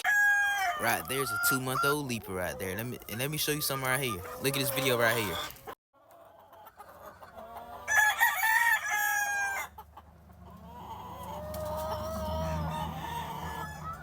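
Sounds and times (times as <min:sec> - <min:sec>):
rooster crowing: 0:00.0 - 0:02.5, 0:07.7 - 0:09.8, 0:10.6 - 0:14.0.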